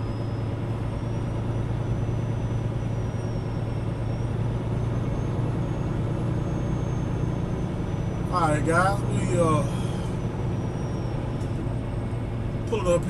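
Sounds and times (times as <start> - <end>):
faint high whine: 0.0 - 5.8
truck diesel engine and road noise: 0.0 - 13.0.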